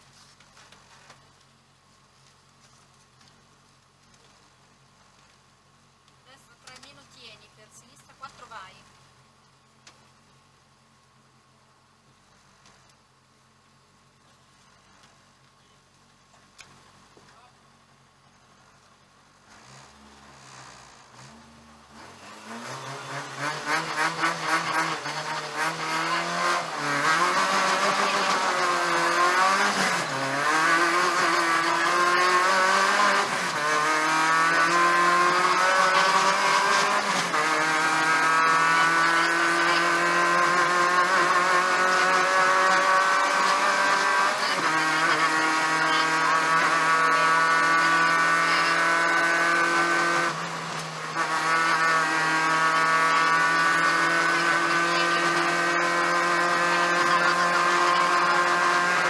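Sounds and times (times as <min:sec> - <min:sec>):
rally car engine revving hard: 0:19.5 - 0:59.0.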